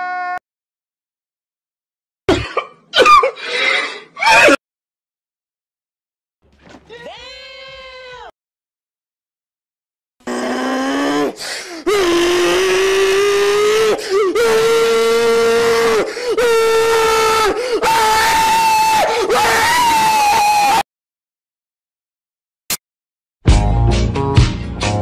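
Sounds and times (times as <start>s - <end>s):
man screaming: 0.0s - 0.4s, 11.8s - 20.8s
gasps for breath: 11.4s - 11.9s.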